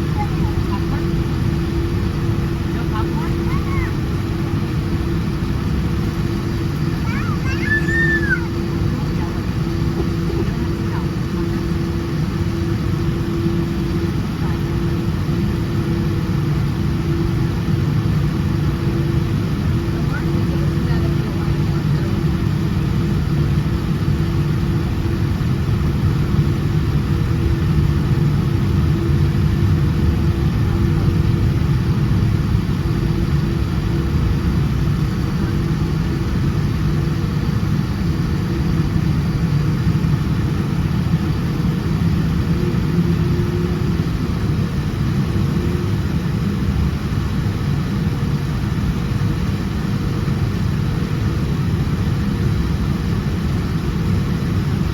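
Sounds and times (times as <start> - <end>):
jet engines running: 0.0 - 54.9.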